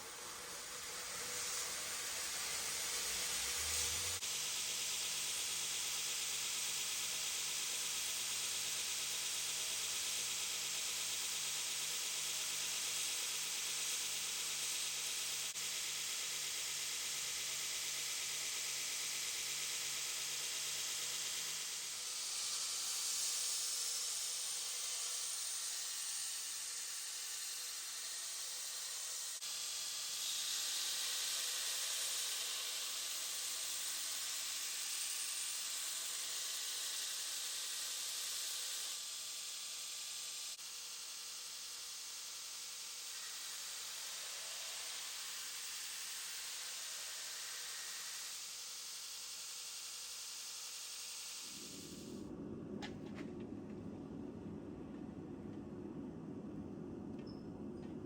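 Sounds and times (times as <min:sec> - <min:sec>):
belt grinder grinding hiss: 0:00.0 - 0:52.3
low motor hum: 0:52.2 - 0:58.0.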